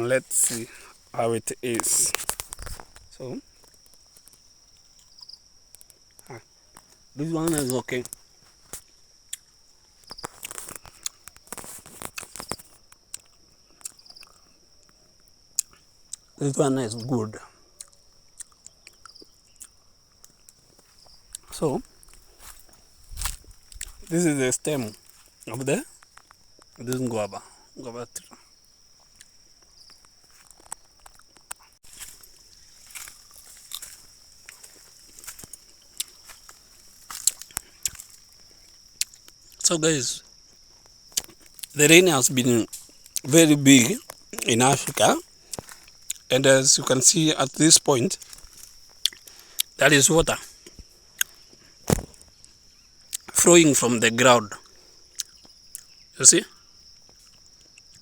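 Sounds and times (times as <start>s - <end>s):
insects trilling: 0.0s - 58.0s
crunching and rustling clicks: 1.6s - 15.0s, 17.8s - 27.4s, 29.0s - 39.7s, 40.5s - 46.3s, 47.5s - 53.4s
crackling and rustling clicks: 1.7s - 5.0s, 5.7s - 8.9s, 10.0s - 13.3s, 29.2s - 38.3s.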